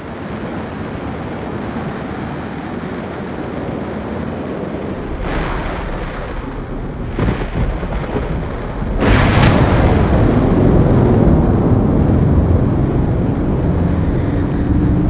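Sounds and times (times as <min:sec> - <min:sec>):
storm roar of wind and rain: 0:00.0 - 0:15.0
low rumbling: 0:04.0 - 0:15.0.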